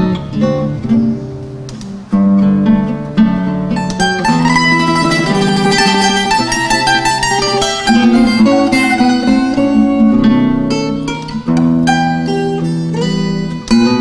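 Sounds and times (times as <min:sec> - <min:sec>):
plucked string trio: 0:03.0 - 0:14.0.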